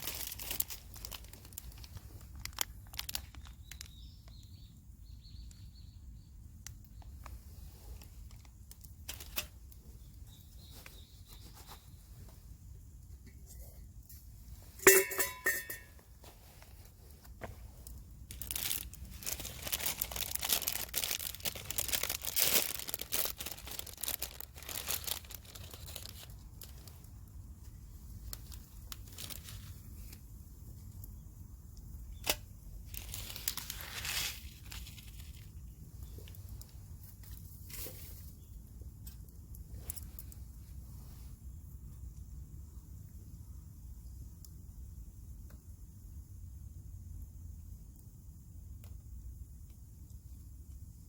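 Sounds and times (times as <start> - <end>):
plastic packaging crinkling and tearing: 0.0 - 4.5, 7.0 - 10.0, 16.4 - 30.3, 32.1 - 38.2.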